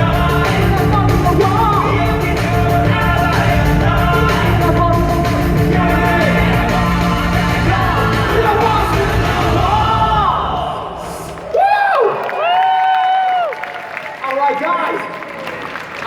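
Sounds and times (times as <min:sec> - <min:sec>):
person singing: 0:00.0 - 0:11.3.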